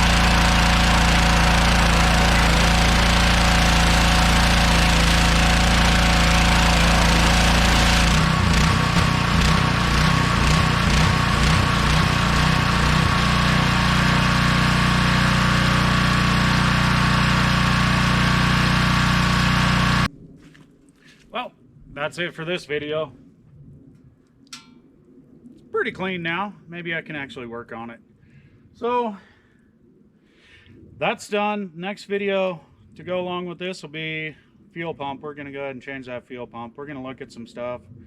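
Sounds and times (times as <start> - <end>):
small gas engine running: 0.0 - 20.1.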